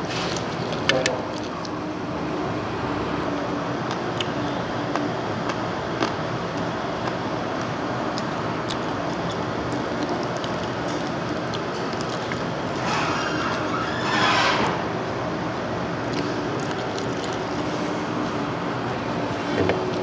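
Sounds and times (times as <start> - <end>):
chewing and lip smacks: 0.2 - 1.8, 3.8 - 12.8, 16.1 - 17.8.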